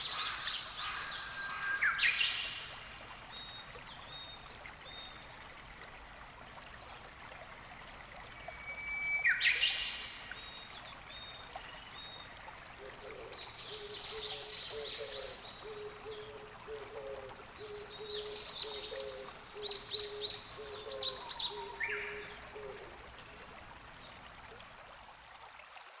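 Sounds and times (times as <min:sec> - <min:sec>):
wild birds calling: 0:00.0 - 0:02.7, 0:12.0 - 0:23.1.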